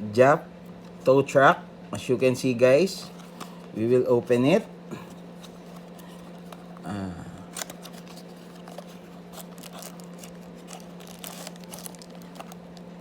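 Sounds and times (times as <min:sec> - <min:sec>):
packaging clicks and rustles: 0:07.5 - 0:13.0.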